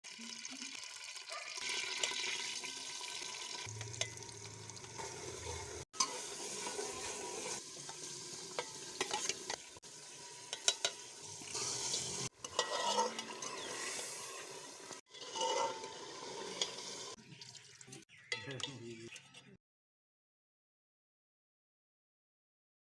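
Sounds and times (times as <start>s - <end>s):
food frying in a pot: 0.0s - 18.5s
spoon clinking against pot: 10.5s - 11.0s.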